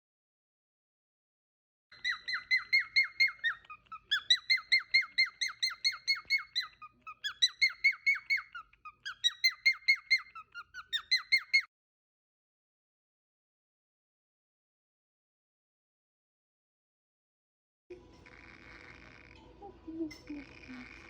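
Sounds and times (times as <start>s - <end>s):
cockatiel chirping: 1.9s - 11.7s.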